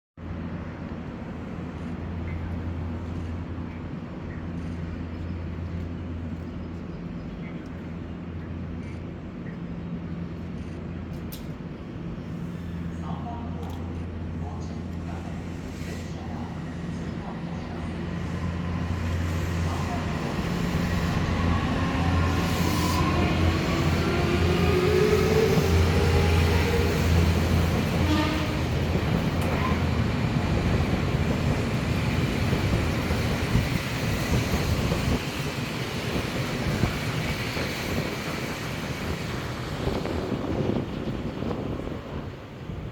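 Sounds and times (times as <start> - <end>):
electric train humming and rumbling: 0.2 - 42.9
train motor whine: 18.1 - 31.4.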